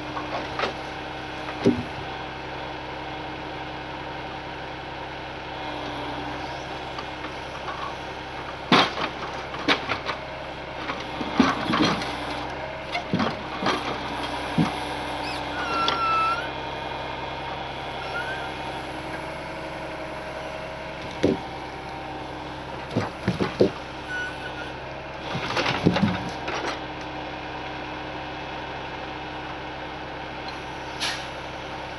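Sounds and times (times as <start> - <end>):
truck engine idling: 0.0 - 31.9
sharp knocks and cracks: 1.5 - 1.9, 8.6 - 10.2, 12.9 - 14.8, 22.8 - 23.8, 25.3 - 26.8
brief squeal: 15.2 - 16.5, 18.0 - 18.7, 24.0 - 24.8.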